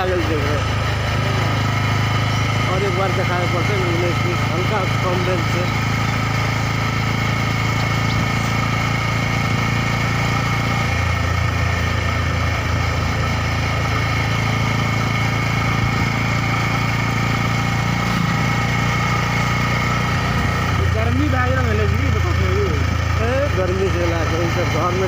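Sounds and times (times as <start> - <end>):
motorcycle engine humming: 0.0 - 25.0.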